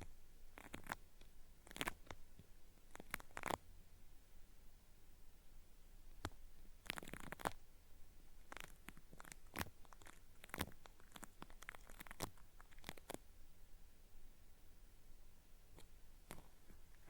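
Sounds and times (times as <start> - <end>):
cotton swab scratching microphone: 0.0 - 2.2, 2.9 - 3.6, 6.2 - 7.6, 8.4 - 13.2.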